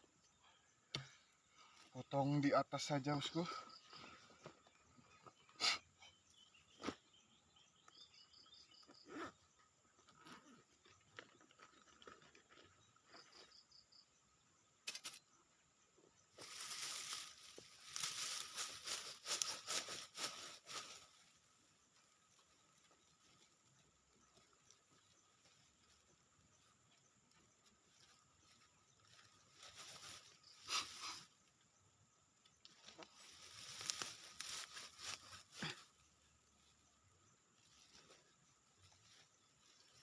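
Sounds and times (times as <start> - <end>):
scraping and rustling: 16.4 - 21.4.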